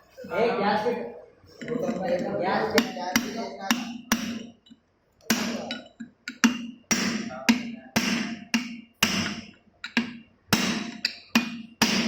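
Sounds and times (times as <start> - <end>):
hammer striking metal: 2.7 - 4.6, 5.3 - 12.0.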